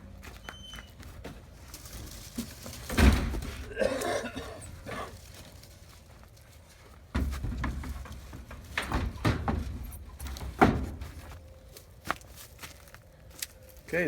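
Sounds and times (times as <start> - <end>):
shed door knocks and rattles: 2.3 - 3.8, 7.1 - 11.2.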